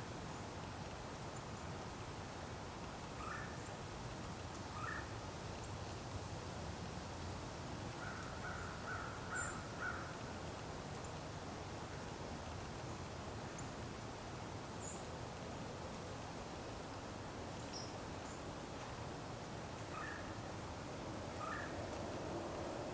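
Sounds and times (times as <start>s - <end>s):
steady outdoor hiss: 0.0s - 22.9s
distant harsh bird calls: 8.0s - 10.1s, 19.9s - 20.4s, 21.4s - 21.8s.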